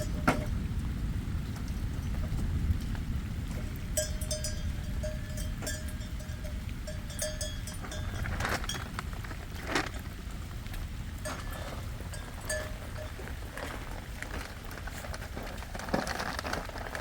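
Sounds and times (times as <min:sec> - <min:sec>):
livestock bells clinking: 0:00.0 - 0:00.5, 0:04.0 - 0:09.0, 0:11.2 - 0:13.8
steady low rumble: 0:00.0 - 0:17.0.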